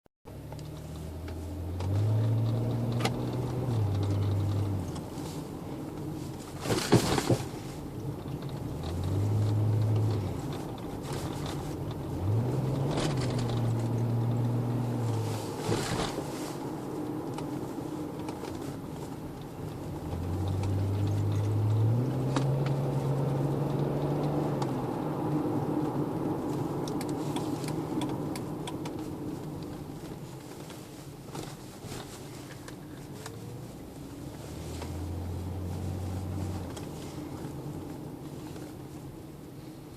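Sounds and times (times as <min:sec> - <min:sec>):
car engine accelerating: 0:00.3 - 0:39.9.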